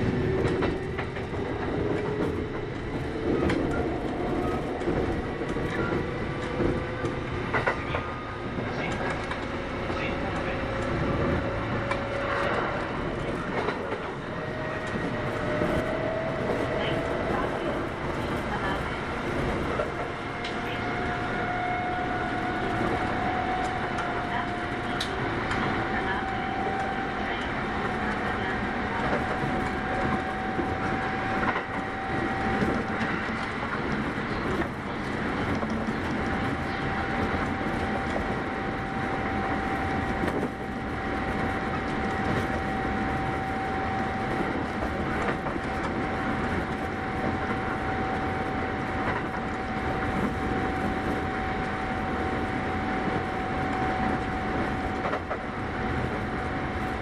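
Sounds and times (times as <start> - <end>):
steady train whine: 0.0 - 57.0
train wheels rumbling on rails: 0.0 - 57.0.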